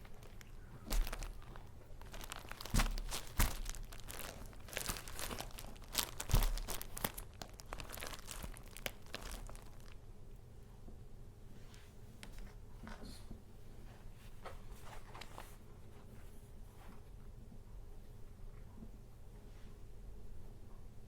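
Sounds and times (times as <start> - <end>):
paper crinkling and rustling: 0.0 - 10.0, 14.3 - 15.6.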